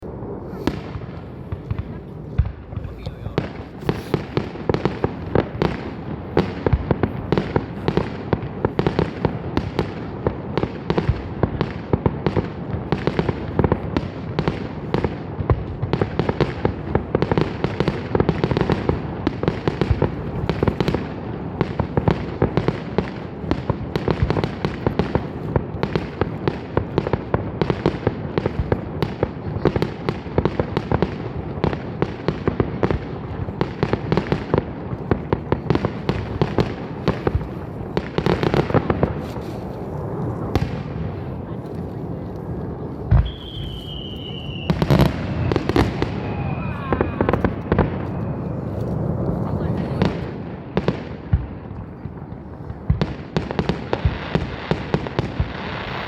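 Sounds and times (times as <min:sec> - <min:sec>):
fireworks bursting: 0:00.0 - 0:56.0
low rumble of echoing reports: 0:00.2 - 0:04.3.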